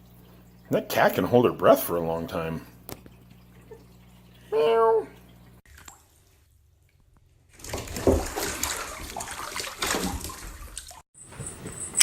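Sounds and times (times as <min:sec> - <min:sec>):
water sloshing and splashing: 0:05.1 - 0:11.1.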